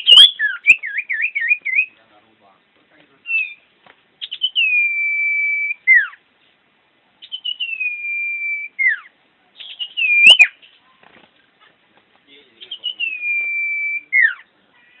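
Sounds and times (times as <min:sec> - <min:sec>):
bird singing whistled notes: 0:00.0 - 0:02.0, 0:03.2 - 0:06.2, 0:07.2 - 0:10.9, 0:12.6 - 0:15.0.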